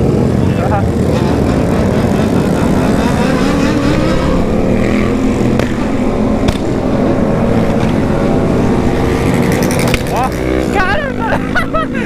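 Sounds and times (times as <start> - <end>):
motorcycle engines running: 0.0 - 12.0
sharp cracks: 5.4 - 8.2, 9.2 - 10.5.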